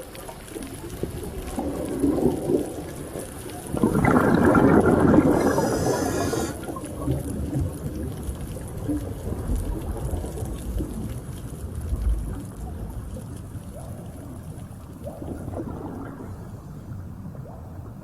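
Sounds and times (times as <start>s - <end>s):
underwater water rumble: 0.0s - 18.0s
fine crackling clicks: 6.7s - 16.3s.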